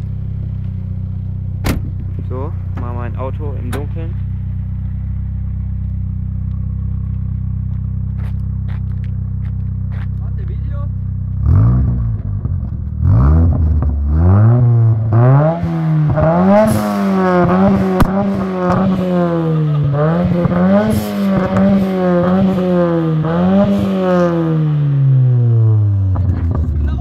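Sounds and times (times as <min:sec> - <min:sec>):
car engine revving: 0:00.0 - 0:27.0
sharp exhaust pops: 0:01.6 - 0:03.0, 0:15.6 - 0:22.6.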